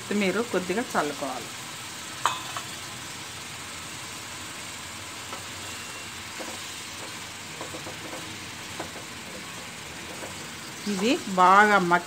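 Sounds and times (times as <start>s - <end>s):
vegetables sizzling in a pan: 0.0s - 12.0s
wooden spatula taps and scrapes: 6.4s - 9.4s, 10.0s - 11.1s.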